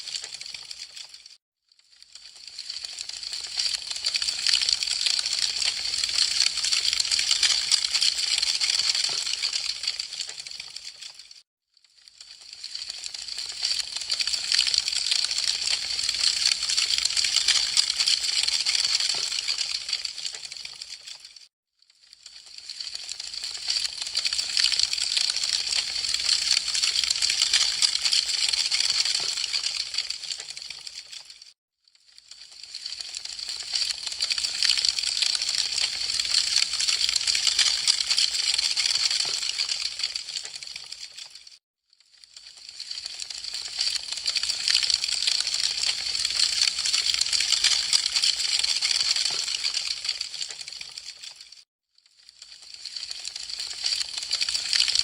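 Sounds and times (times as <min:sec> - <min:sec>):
wood fire crackling: 0:00.1 - 0:01.1.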